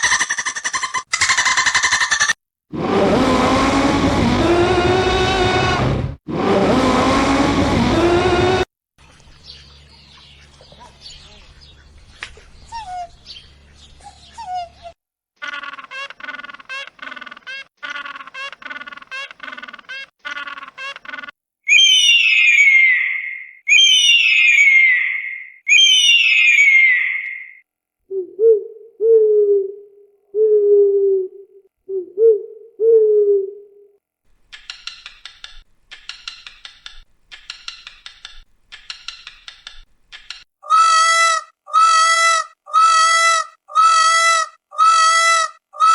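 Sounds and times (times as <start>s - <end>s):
birds chirping: 9.0s - 27.6s
loud falling whistled call: 21.7s - 27.6s
bird hooting coos: 28.1s - 34.0s.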